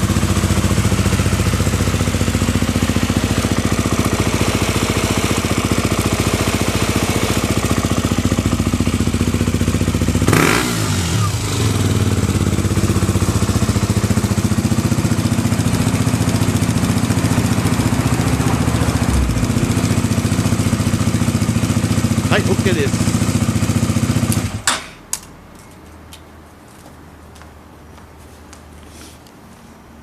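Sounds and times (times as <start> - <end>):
motorcycle engine idling: 0.0 - 24.6.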